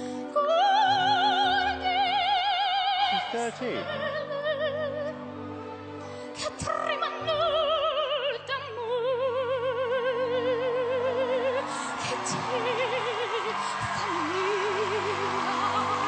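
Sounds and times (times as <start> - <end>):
girl singing opera: 0.1 - 5.2, 6.4 - 16.0.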